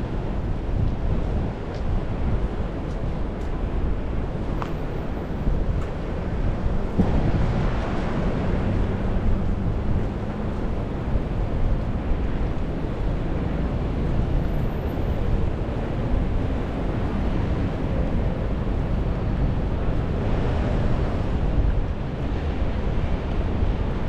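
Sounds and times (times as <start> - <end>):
street traffic: 0.0 - 24.0
wind rumbling on microphone: 0.0 - 24.0
steady rain: 6.0 - 21.6.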